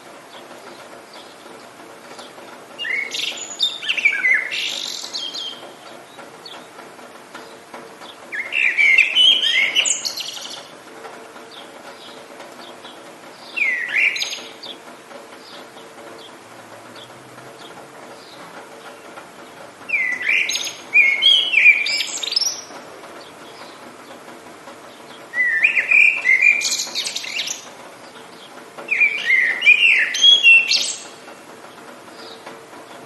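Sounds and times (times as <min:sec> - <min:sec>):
soft hiss of rain: 0:00.0 - 0:33.0
songbird whistling: 0:02.8 - 0:05.6, 0:08.3 - 0:10.6, 0:13.5 - 0:14.7, 0:19.9 - 0:22.7, 0:25.3 - 0:27.6, 0:28.9 - 0:31.1.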